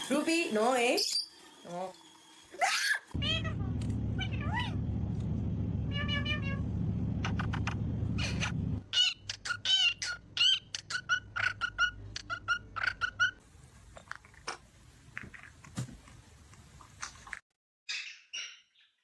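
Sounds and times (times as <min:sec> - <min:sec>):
parrot chirping and squawking: 0:00.9 - 0:01.5, 0:02.5 - 0:03.5, 0:07.2 - 0:13.4, 0:17.9 - 0:19.0.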